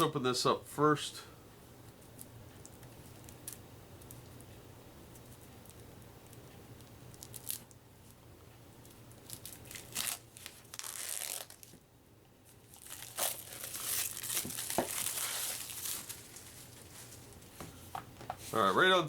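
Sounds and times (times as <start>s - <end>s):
plastic packaging crinkling: 7.2s - 7.8s, 9.2s - 11.8s, 12.5s - 17.5s.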